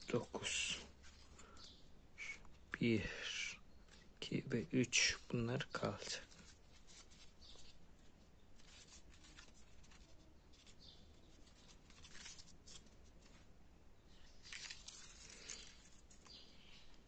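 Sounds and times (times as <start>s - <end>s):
paper rustling and crinkling: 5.8s - 13.6s, 14.2s - 17.0s.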